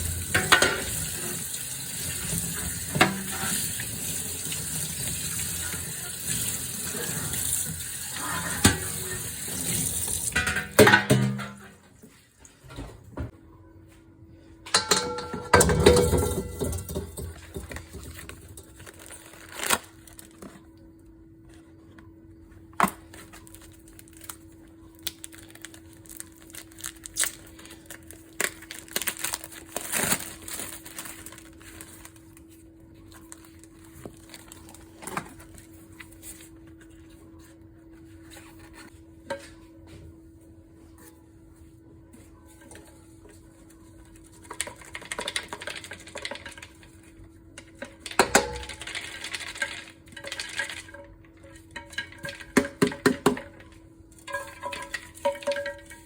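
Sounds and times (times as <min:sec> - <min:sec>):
scrubbing dishes: 0:00.0 - 0:11.8, 0:14.7 - 0:18.8
faint hum: 0:12.4 - 0:44.8
dishes clinking: 0:14.7 - 0:18.6.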